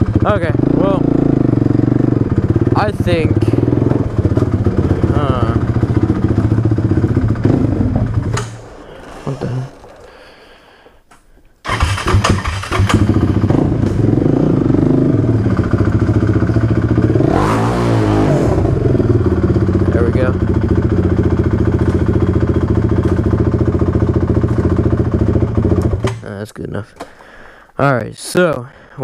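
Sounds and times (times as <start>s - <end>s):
engine revving: 0.0s - 10.2s, 11.6s - 26.2s
quad bike engine idling: 0.0s - 10.6s, 11.7s - 26.3s
engine starting up: 11.6s - 14.0s.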